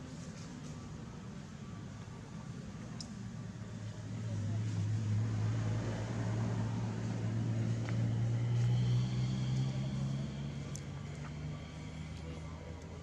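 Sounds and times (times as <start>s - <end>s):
vehicle engine passing by: 4.2s - 12.6s.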